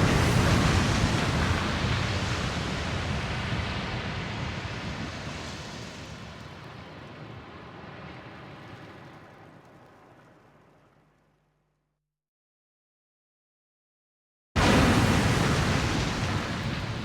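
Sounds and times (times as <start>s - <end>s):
rumbling blast boom: 0.0s - 5.5s.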